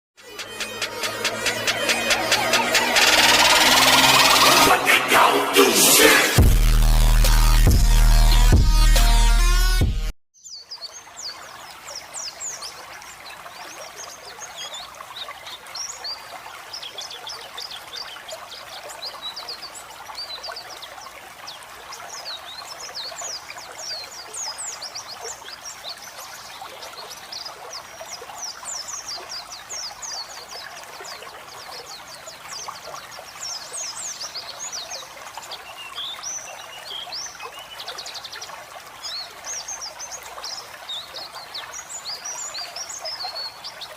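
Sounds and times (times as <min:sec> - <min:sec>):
birds twittering and trilling: 0:10.4 - 0:43.9
water trickling: 0:10.4 - 0:43.9.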